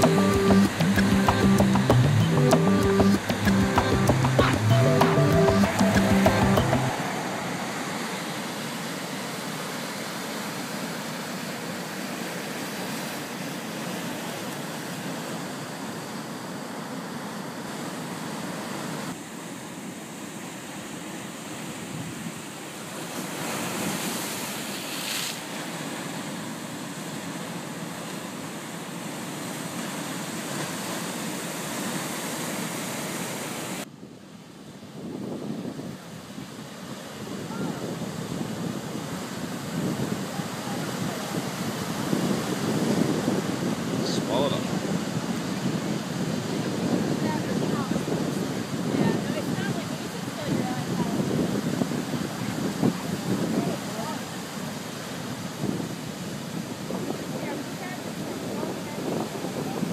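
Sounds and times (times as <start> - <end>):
ocean surf breaking: 0.0 - 33.9, 35.4 - 59.9
wind buffeting microphone: 34.8 - 59.9.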